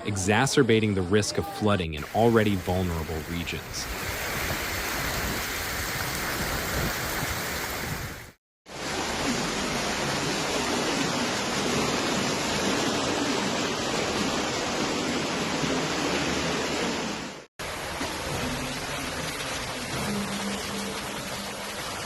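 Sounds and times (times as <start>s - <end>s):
rushing water: 1.6s - 22.0s.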